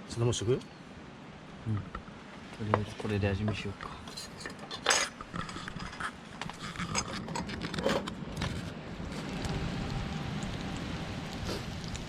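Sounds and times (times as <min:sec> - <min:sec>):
rain hissing: 0:08.7 - 0:12.0.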